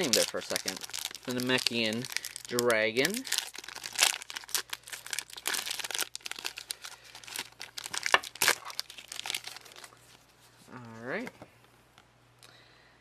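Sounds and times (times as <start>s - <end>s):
foil wrapper crinkling: 0.0s - 10.3s.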